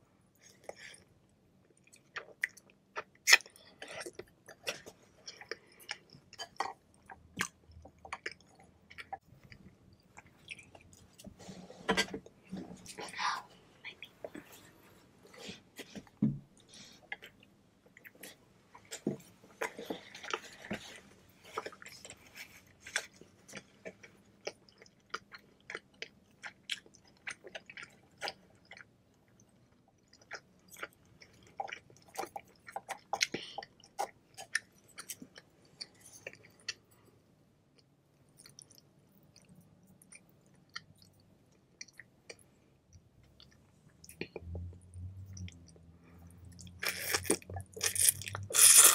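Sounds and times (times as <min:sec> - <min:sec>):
person chewing noodles: 0:19.6 - 0:36.9, 0:37.8 - 0:48.9.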